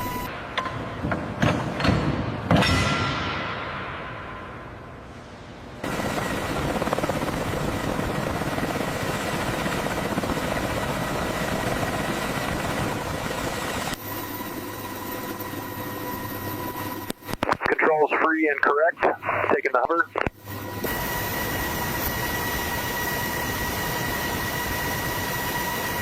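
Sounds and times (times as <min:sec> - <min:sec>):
helicopter rotors and turbines: 0:00.0 - 0:26.0
faint steady whine: 0:04.3 - 0:26.0.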